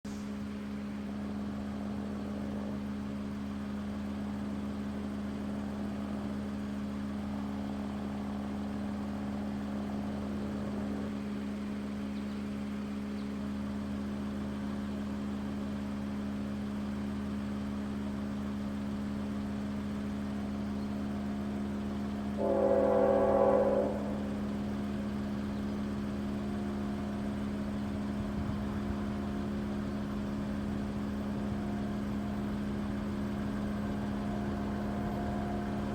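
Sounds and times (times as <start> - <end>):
diesel locomotive humming: 0.0 - 35.9
train air horn blast: 22.3 - 24.9.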